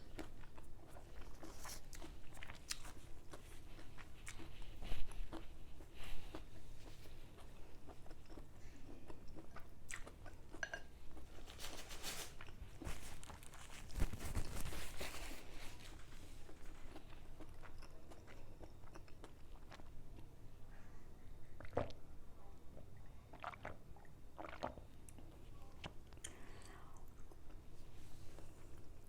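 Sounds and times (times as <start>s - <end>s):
chewing and crunching food: 0.0s - 20.3s, 22.7s - 29.0s.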